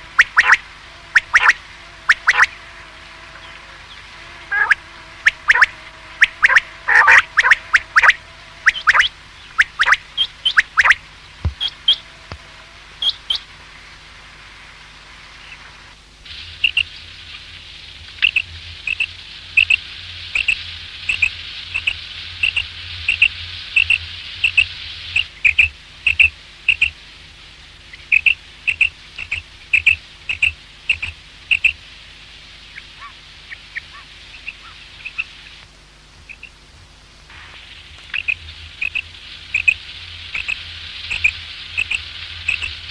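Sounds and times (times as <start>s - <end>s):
quail calling: 0.0s - 2.6s, 4.5s - 11.0s, 20.4s - 24.6s, 32.8s - 35.4s, 36.3s - 36.6s, 38.2s - 39.8s, 40.4s - 42.8s
steady hiss: 0.0s - 42.9s.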